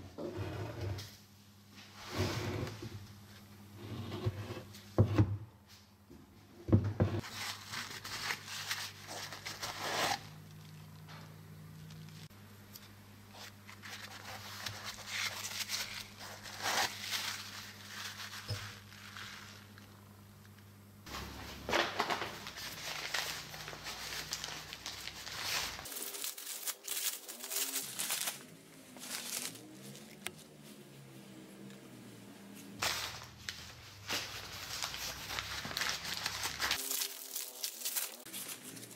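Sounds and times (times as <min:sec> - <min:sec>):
paper towel rustling: 0:07.2 - 0:10.8, 0:13.4 - 0:19.9, 0:21.1 - 0:31.0, 0:32.8 - 0:38.9.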